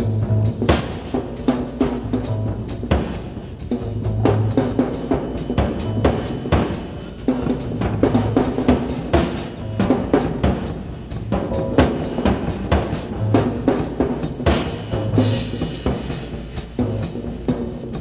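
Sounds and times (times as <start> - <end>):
rock band playing: 0.0 - 16.6
busy drum kit: 0.0 - 18.0
bass line: 11.1 - 13.8.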